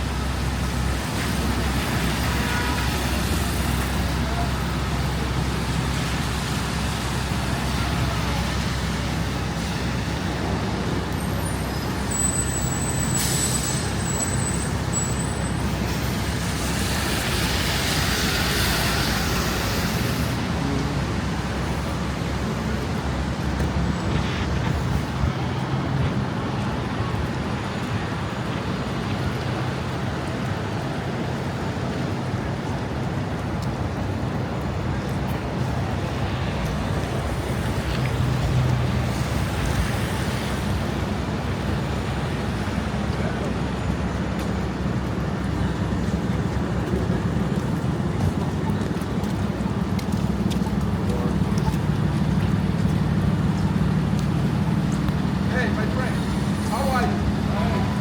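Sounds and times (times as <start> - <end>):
street traffic rumble: 0.0 - 58.0
hiss: 15.9 - 20.5.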